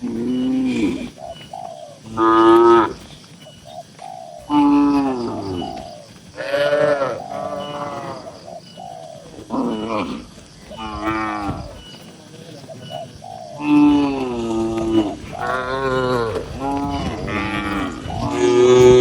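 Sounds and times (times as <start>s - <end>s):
cattle mooing: 6.4s - 8.4s, 9.4s - 11.8s, 13.6s - 19.0s.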